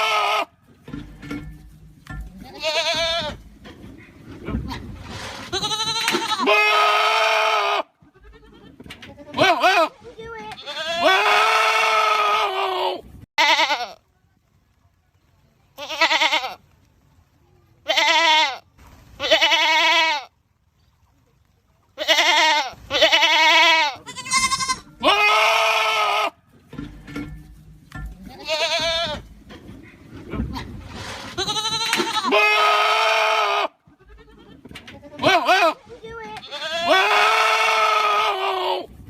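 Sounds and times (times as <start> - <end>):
goats screaming: 0.0 - 0.5, 4.6 - 10.0, 10.6 - 13.8, 22.0 - 26.4, 30.5 - 34.5, 35.2 - 38.9.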